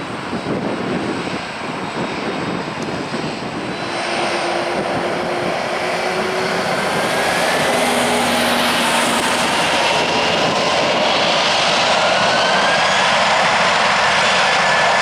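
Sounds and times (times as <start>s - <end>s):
jet engines rushing: 0.0s - 15.0s
faint whines rising in pitch: 3.1s - 11.1s.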